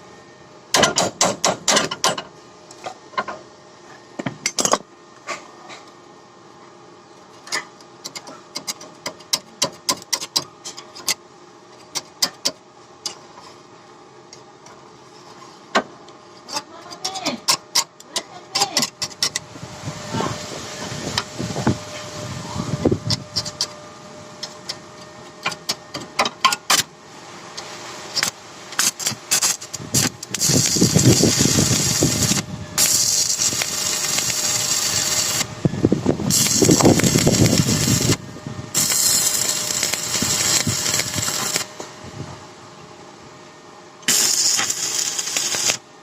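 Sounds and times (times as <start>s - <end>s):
power tool running: 28.2s - 41.9s, 44.1s - 45.8s.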